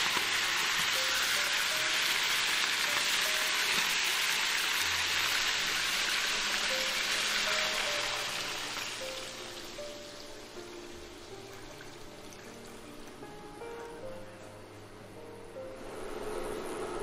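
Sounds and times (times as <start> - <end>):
chicken sizzling in a wok: 0.0 - 12.9.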